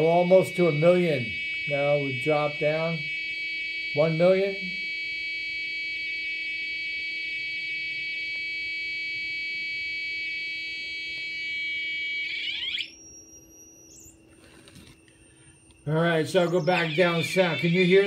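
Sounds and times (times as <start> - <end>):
buzzy oscillator tone: 0.0 - 14.4, 15.1 - 18.0.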